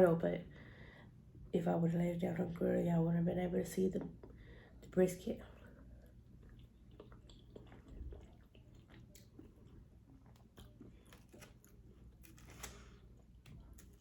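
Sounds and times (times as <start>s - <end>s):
person chewing food: 5.6s - 14.0s.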